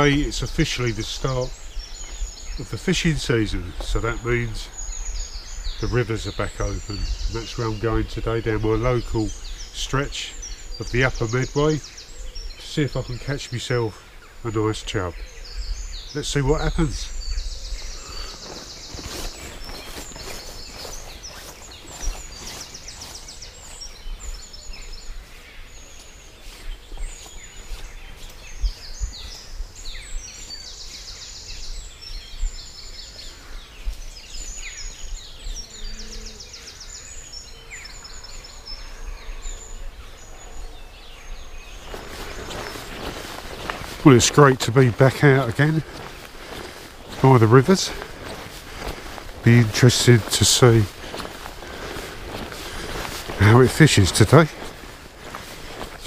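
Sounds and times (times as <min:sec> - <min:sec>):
birds singing trills: 0:00.0 - 0:56.0.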